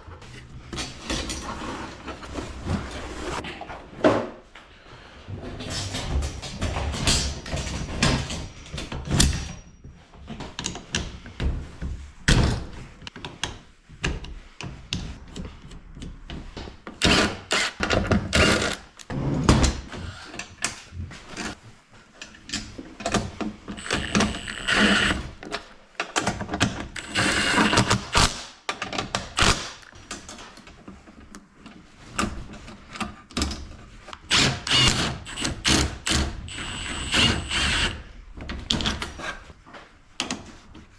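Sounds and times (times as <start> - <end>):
hand tools and metal parts clanking: 0.2 - 4.4, 5.4 - 11.3.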